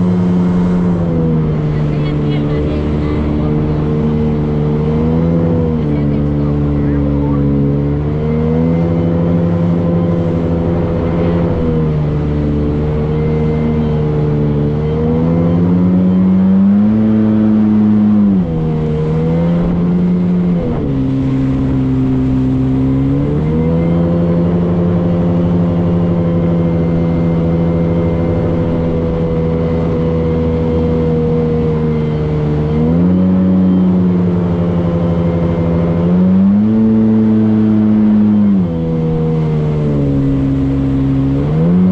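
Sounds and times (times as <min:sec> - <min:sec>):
motorboat engine running: 0:00.0 - 0:41.9.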